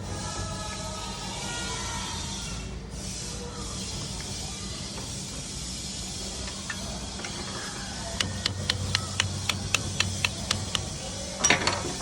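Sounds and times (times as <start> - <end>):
sharp clicks: 8.2 - 11.0.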